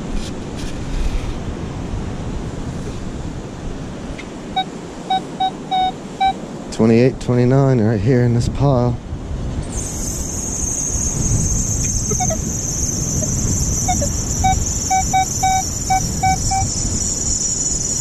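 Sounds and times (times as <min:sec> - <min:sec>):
wind buffeting microphone: 0:00.0 - 0:18.0
metal detector beeps: 0:04.6 - 0:06.4, 0:10.2 - 0:18.0
high-pitched hiss: 0:09.7 - 0:18.0.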